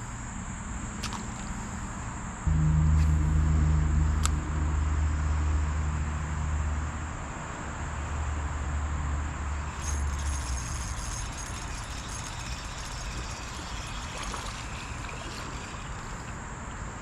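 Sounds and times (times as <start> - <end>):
low engine drone: 2.4 - 7.4
insects buzzing: 9.5 - 17.0.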